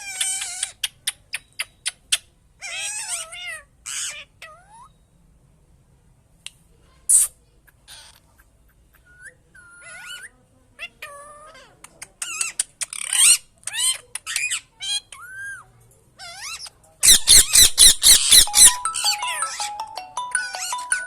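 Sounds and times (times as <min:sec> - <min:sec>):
parrot whistles and squawks: 0:07.1 - 0:10.4, 0:11.0 - 0:18.8.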